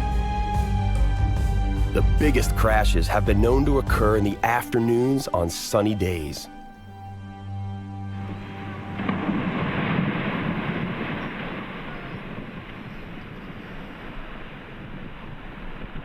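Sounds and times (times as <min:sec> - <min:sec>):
ice crashing into lake: 0:09.0 - 0:16.0.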